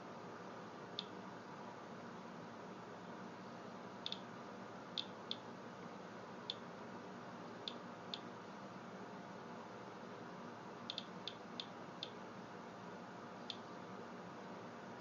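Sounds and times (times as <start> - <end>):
low steady hiss: 0.0 - 15.0
geiger counter clicking: 10.9 - 12.2.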